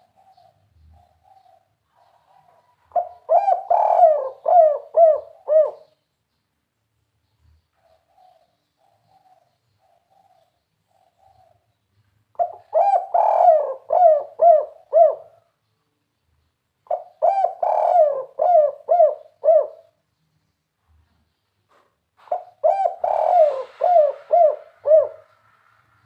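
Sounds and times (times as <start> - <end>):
dove cooing: 0.0 - 6.0, 12.4 - 15.5, 16.8 - 20.0, 22.2 - 25.5.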